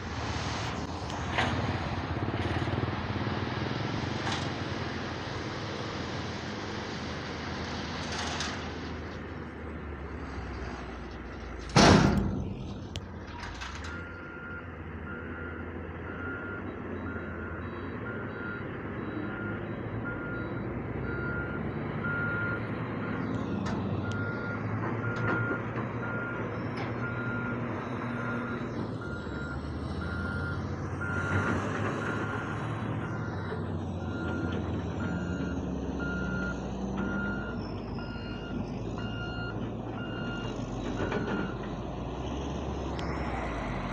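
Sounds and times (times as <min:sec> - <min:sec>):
diesel machinery running: 0:00.0 - 0:43.9
reversing alarm beeps: 0:13.8 - 0:33.4, 0:34.0 - 0:41.6.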